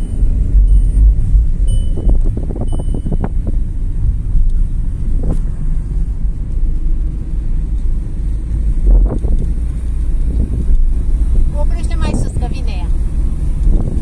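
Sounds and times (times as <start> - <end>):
short electronic beep: 0.0 - 3.4
car engine rumbling under load: 0.0 - 14.0.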